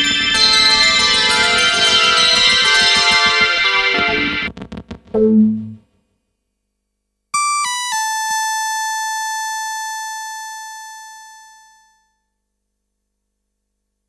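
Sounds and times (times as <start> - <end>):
synthesizer low note: 0.6 - 5.8.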